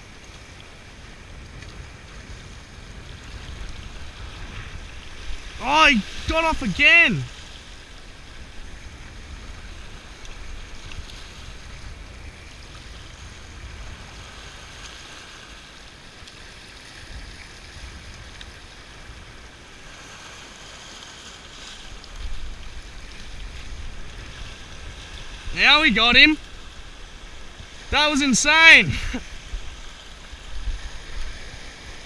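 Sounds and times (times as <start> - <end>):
sea washing against rocks: 0.2 - 32.0.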